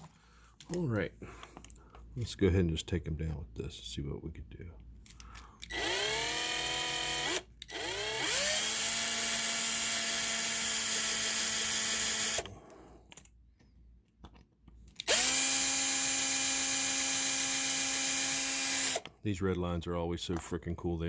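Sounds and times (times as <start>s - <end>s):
rotary power tool grinding: 5.7s - 12.5s, 15.0s - 19.1s.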